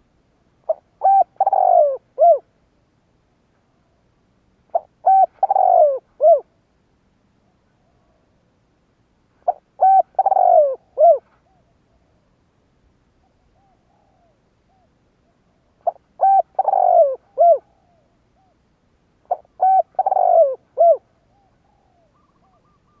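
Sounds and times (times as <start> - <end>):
dove cooing: 0.7 - 2.5, 4.7 - 6.5, 9.4 - 12.2, 13.3 - 18.6, 19.2 - 23.0.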